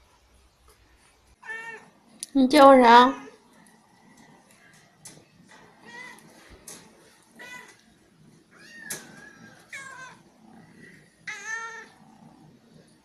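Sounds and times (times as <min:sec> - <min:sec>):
cat meowing: 0:01.4 - 0:01.9, 0:05.8 - 0:06.3, 0:07.3 - 0:07.8, 0:08.5 - 0:10.2, 0:11.2 - 0:12.0.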